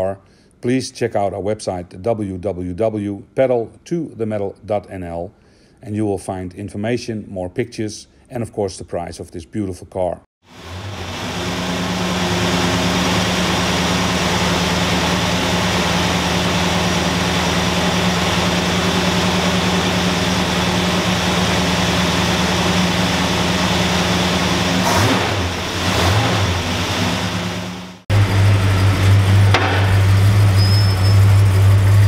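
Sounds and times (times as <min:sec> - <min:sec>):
car engine idling: 0:10.6 - 0:32.0.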